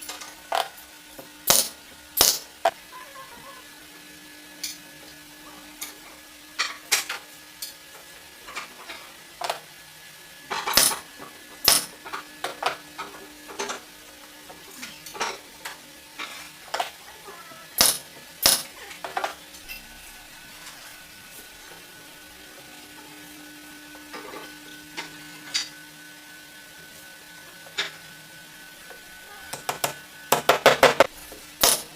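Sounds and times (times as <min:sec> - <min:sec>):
wooden parts tapping and clicking: 0:17.8 - 0:19.3, 0:29.5 - 0:31.9.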